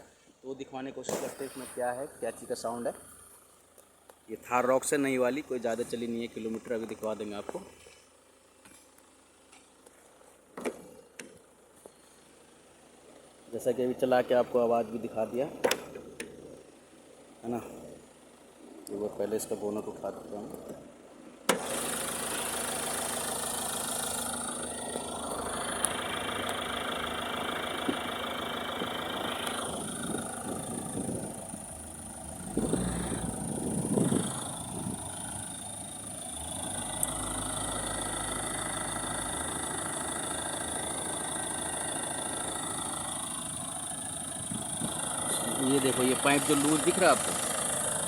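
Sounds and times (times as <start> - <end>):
car engine idling: 0.0 - 48.0.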